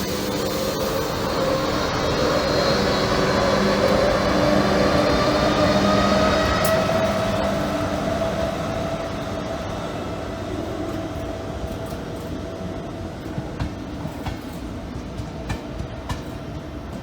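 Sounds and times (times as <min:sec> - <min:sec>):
steady whine: 0:00.0 - 0:13.1
train running noise: 0:00.0 - 0:17.0.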